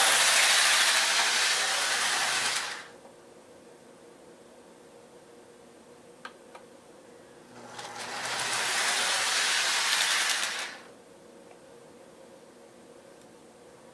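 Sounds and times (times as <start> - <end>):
model train whirring past: 0.0 - 2.9, 7.6 - 10.9.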